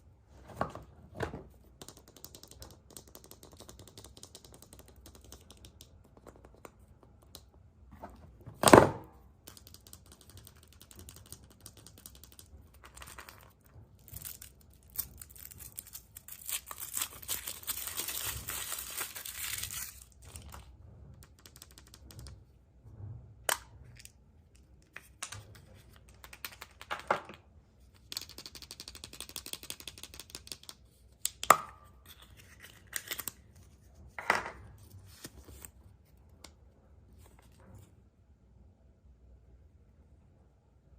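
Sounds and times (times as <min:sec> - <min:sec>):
wrapper crinkling and tearing: 0:14.0 - 0:20.5.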